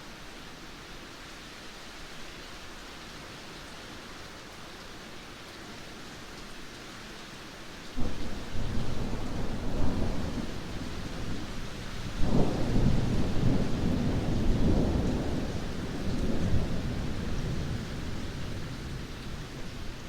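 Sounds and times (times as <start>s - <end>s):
heavy rain: 0.0s - 20.0s
rolling thunder: 8.0s - 19.1s.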